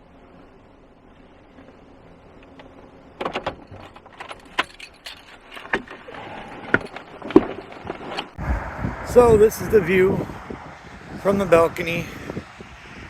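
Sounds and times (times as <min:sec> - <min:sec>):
sharp clicks and knocks: 0:02.4 - 0:08.4.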